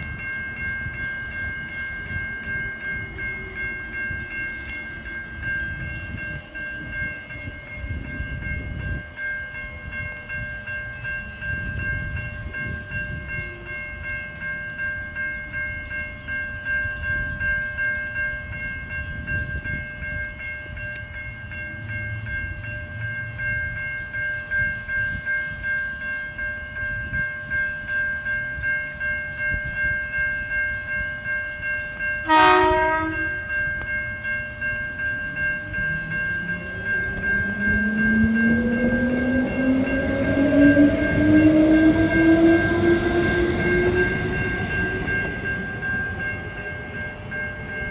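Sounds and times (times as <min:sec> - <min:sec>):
steady high ringing: 0:00.0 - 0:47.9
train wheels rumbling on rails: 0:00.0 - 0:47.9
train horn blast: 0:32.2 - 0:33.5.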